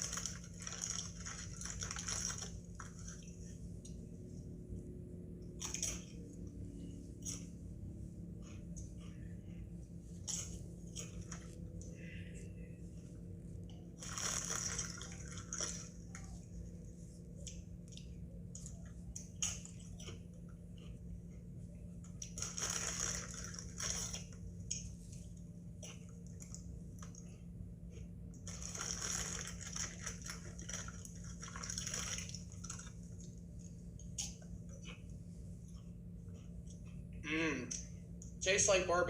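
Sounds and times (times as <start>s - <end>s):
tortilla chips crunching: 0.0s - 3.4s, 13.9s - 16.4s, 22.2s - 25.1s, 28.4s - 35.0s
low electrical hum: 0.0s - 39.0s.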